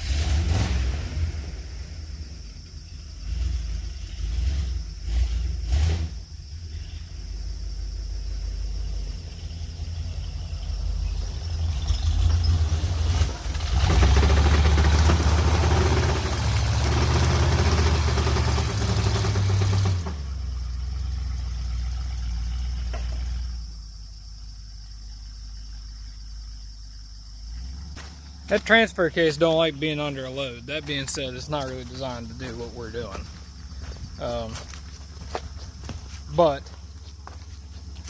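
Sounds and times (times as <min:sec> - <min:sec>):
pickup engine working hard: 0:11.6 - 0:23.7
man talking: 0:28.5 - 0:33.3, 0:34.2 - 0:34.7, 0:36.3 - 0:36.7.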